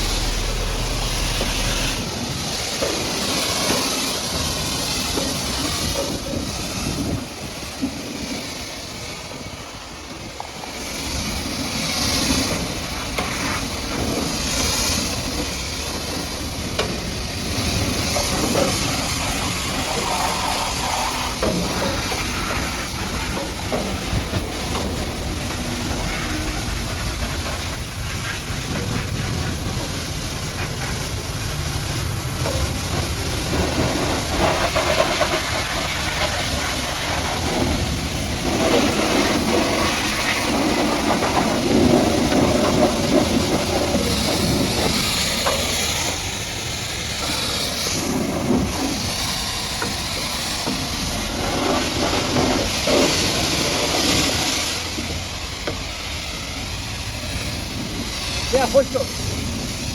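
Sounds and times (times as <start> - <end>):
pressure washer spraying water: 0.0 - 59.9.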